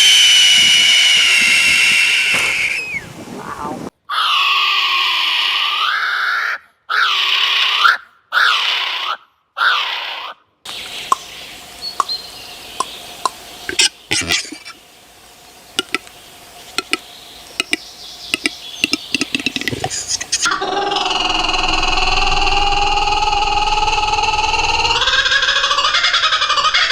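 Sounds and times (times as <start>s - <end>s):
sharp clicks and ticks: 15.8s - 16.2s, 16.8s - 17.0s, 17.6s - 20.5s.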